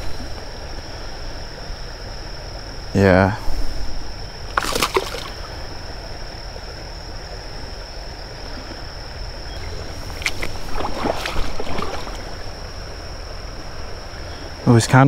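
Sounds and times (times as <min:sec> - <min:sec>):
creek water running: 0:00.0 - 0:15.0
steady high-pitched whine: 0:00.0 - 0:15.0
water splashes: 0:04.5 - 0:05.8, 0:09.6 - 0:14.8.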